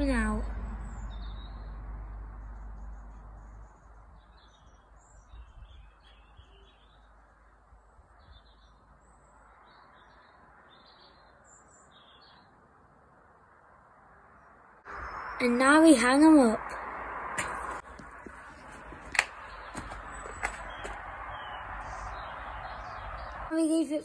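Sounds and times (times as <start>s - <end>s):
low rumble: 0.4s - 4.1s
faint bird chirps: 2.8s - 7.2s.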